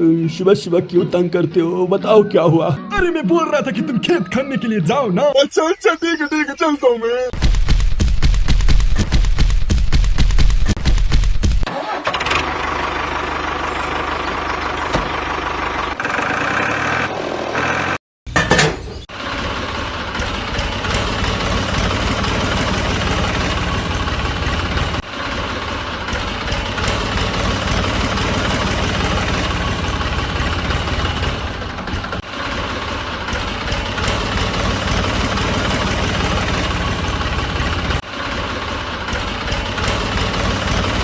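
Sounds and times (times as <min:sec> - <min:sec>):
tractor engine starting and idling: 0:11.6 - 0:41.0.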